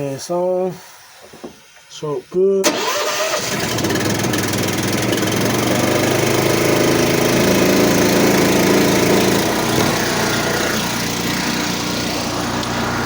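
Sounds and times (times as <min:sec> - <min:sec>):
pressure washer engine running: 0:02.7 - 0:13.0.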